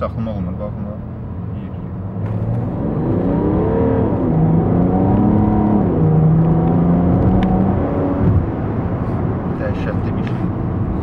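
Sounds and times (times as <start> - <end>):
diesel engine accelerating hard: 0.6 - 11.0.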